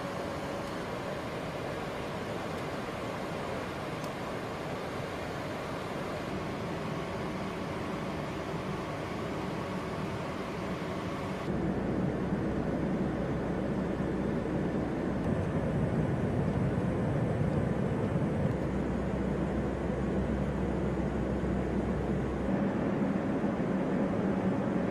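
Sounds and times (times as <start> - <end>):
aircraft engine drone: 0.0 - 24.9.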